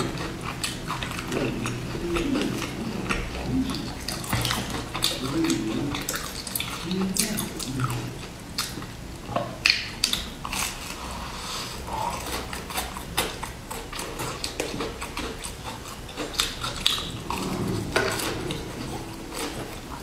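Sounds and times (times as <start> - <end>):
mouth sounds: 0.0 - 8.7.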